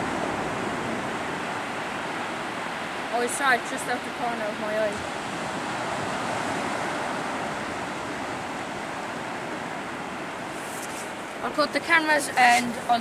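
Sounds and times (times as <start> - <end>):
surf washing onto beach: 0.0 - 13.0.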